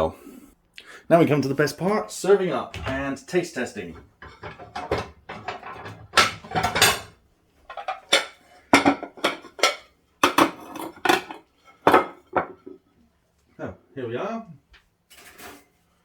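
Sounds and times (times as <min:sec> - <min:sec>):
crockery and cutlery clattering: 0:03.9 - 0:12.8, 0:15.1 - 0:15.7.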